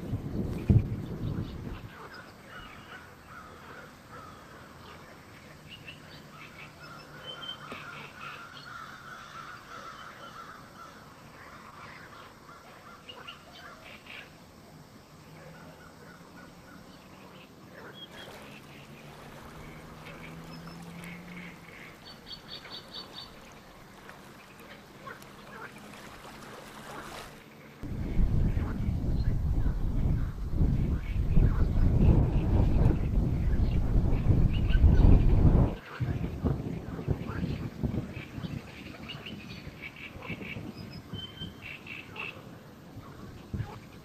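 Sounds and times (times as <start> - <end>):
birds calling: 0.0 - 44.0.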